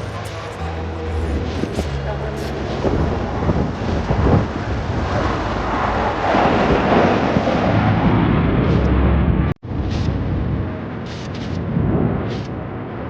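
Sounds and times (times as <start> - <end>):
jet fighters roaring past: 2.8 - 9.5.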